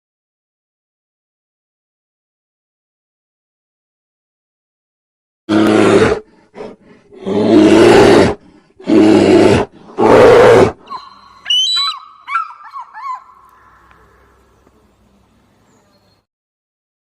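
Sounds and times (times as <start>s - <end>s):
large animal roaring: 5.5s - 10.8s
high gliding chirps: 10.9s - 14.7s.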